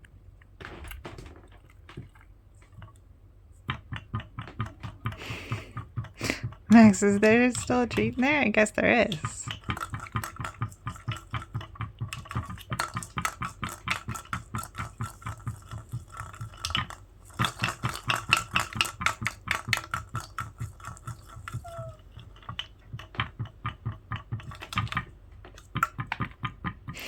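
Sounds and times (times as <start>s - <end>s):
treat ball rolling: 3.7s - 25.2s
treat rattling inside ball: 3.8s - 25.7s.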